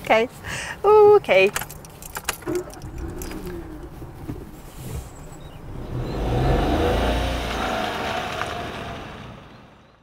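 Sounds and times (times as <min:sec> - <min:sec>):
car engine revving: 0:02.4 - 0:09.8.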